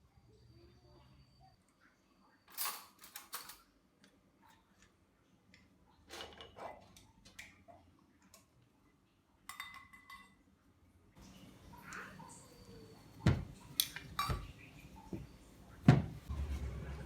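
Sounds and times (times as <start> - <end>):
kitchenware clinking: 2.5 - 3.7, 9.5 - 10.4, 11.9 - 17.0.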